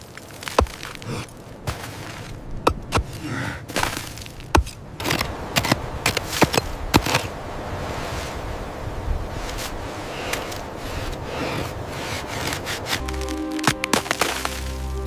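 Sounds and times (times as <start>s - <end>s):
sharp cracks and crunches: 0.0s - 6.8s, 12.4s - 14.8s.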